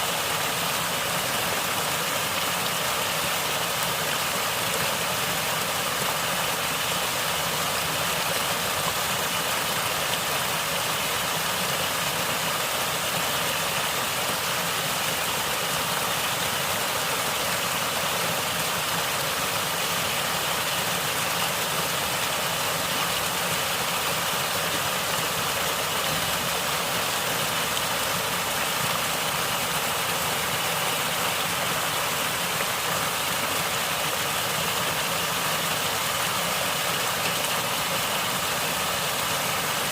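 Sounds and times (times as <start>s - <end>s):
running water gurgling: 0.0s - 39.9s.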